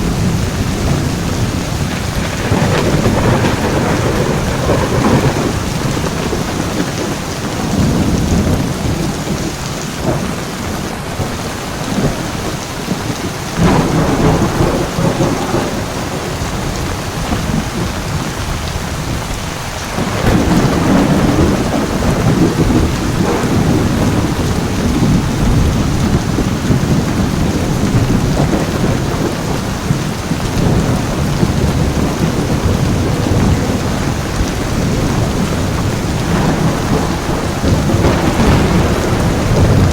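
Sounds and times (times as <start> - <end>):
heavy rain falling: 0.0 - 39.9
thunder rumbling: 0.0 - 39.9.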